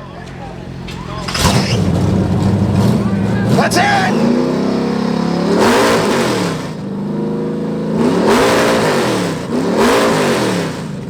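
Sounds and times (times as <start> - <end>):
motorcycle engine idling: 0.0 - 8.0
motorcycle engine revving: 0.0 - 11.0.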